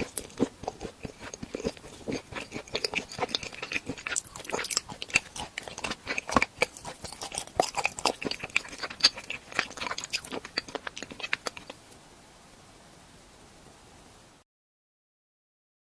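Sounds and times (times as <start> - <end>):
crunching and chewing hard treat: 0.0 - 11.8
faint hiss: 11.7 - 14.4.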